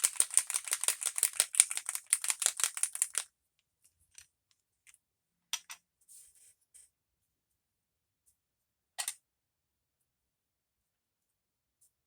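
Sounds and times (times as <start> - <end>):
ink bottle rattling when shaken: 0.0 - 3.2.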